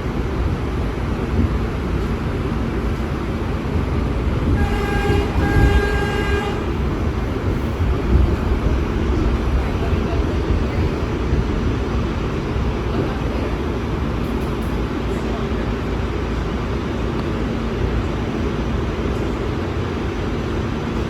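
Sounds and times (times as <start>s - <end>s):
subway train rumble: 0.0s - 21.0s
train horn blasts: 4.4s - 7.0s.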